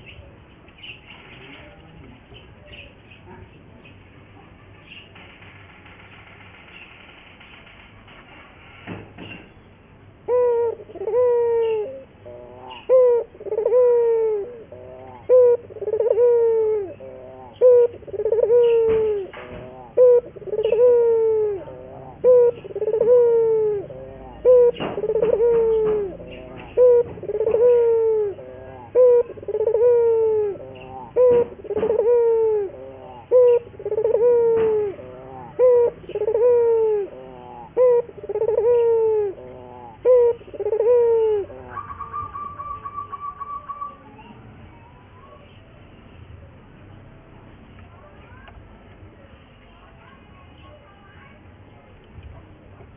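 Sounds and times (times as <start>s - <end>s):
dove cooing: 10.2s - 45.6s.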